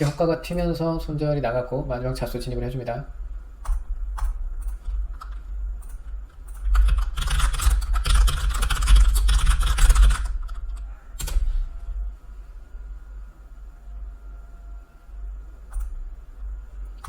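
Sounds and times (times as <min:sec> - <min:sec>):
low steady hum: 0:00.0 - 0:17.0
typing on computer keyboard: 0:03.6 - 0:11.4.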